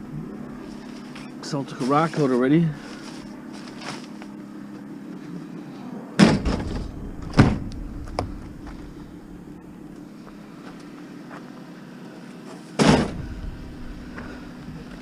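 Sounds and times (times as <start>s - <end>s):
steady low hum: 0.0s - 15.0s
heavy metal bangs: 6.2s - 9.9s, 12.8s - 15.0s.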